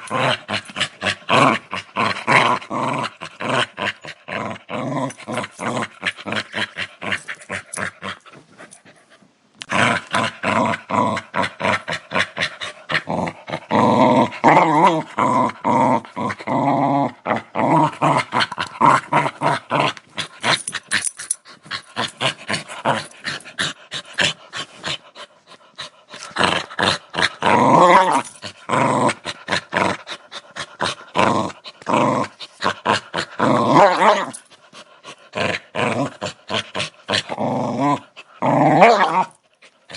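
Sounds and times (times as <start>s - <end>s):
dog growling and snarling: 0.0s - 39.9s.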